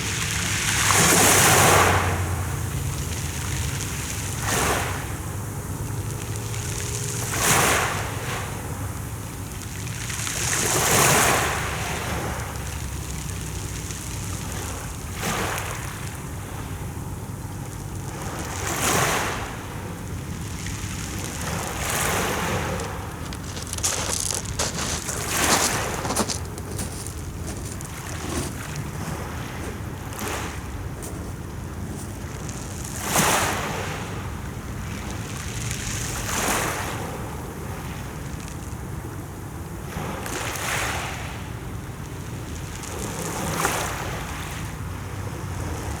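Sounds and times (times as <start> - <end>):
sea waves washing in: 17.5 - 35.2.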